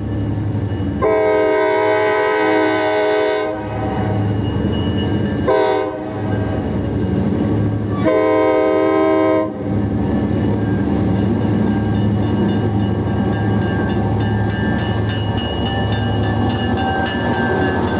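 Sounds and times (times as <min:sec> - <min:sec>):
train running rumble: 0:00.0 - 0:17.9
locomotive air horn blasts: 0:01.0 - 0:04.2, 0:05.5 - 0:06.3, 0:08.0 - 0:09.6.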